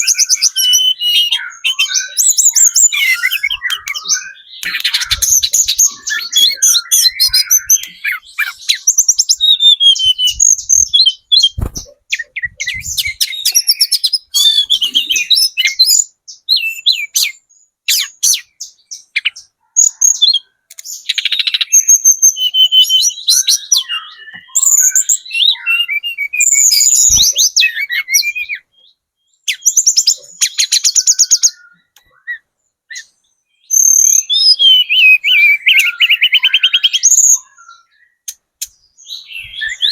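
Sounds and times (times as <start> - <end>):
bird singing trills: 0.0 - 39.9.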